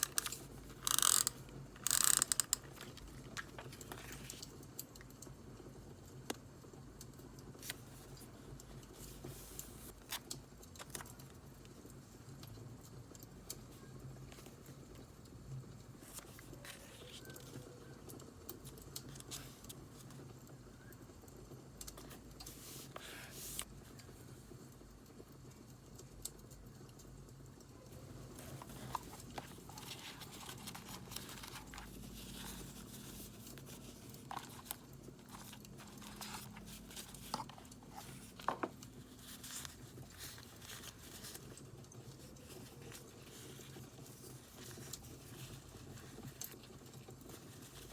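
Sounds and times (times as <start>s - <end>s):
paper crinkling and tearing: 28.0s - 47.9s.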